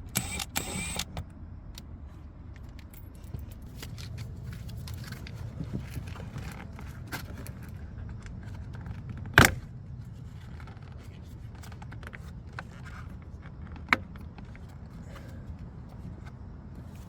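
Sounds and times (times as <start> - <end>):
sharp clicks: 0.0 - 1.9
low steady rumble: 0.0 - 17.0.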